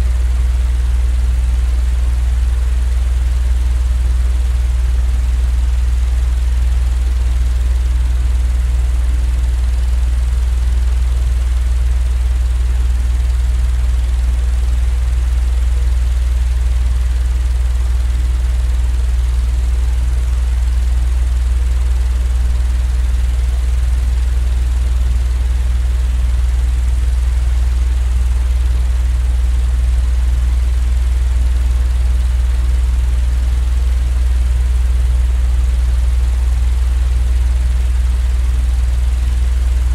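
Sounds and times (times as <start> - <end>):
low droning machine rumble: 0.0 - 39.9.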